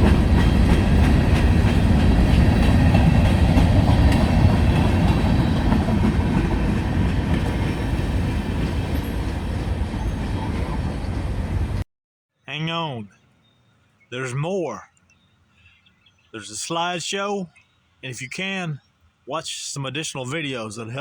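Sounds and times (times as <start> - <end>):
wheels clicking over rail joints: 0.0 - 11.2
freight train rumble: 0.0 - 11.8.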